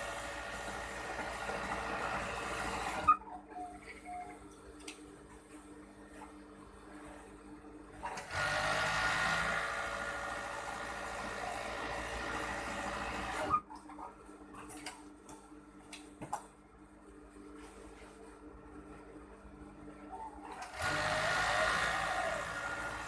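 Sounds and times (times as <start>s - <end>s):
sewing machine running: 0.0s - 3.1s, 8.1s - 13.5s, 20.5s - 23.0s.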